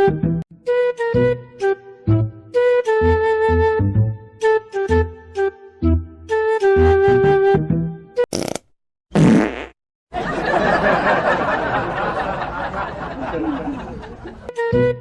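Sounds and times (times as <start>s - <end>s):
flute music: 0.0s - 8.2s, 14.5s - 15.0s
sputtering fart noise: 8.3s - 9.8s.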